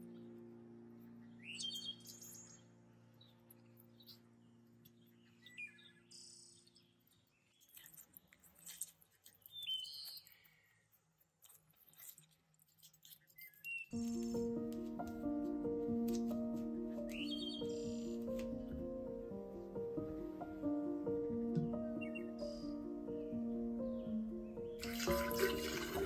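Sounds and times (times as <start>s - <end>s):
soft background music: 0.0s - 7.2s, 13.9s - 26.0s
small birds chirping: 0.0s - 25.1s.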